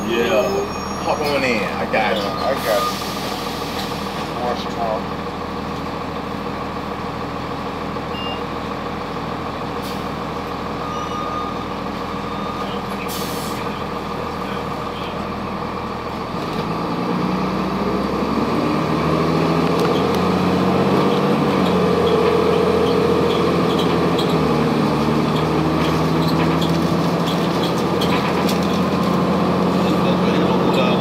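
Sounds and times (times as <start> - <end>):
bus diesel engine running: 0.0 - 31.0.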